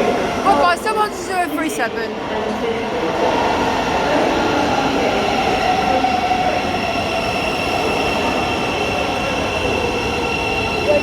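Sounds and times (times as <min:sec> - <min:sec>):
electric train rumble with squeal: 0:03.0 - 0:11.0.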